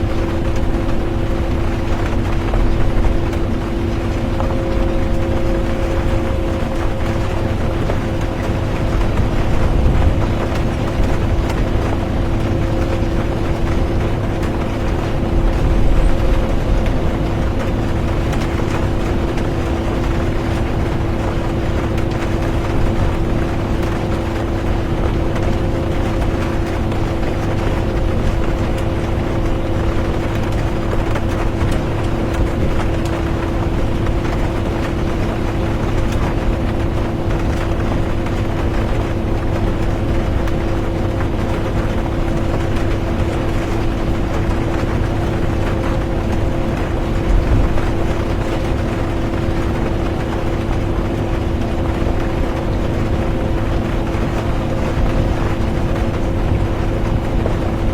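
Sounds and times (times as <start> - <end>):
bus engine drone: 0.0 - 26.3
rain on bus windows: 0.0 - 57.9.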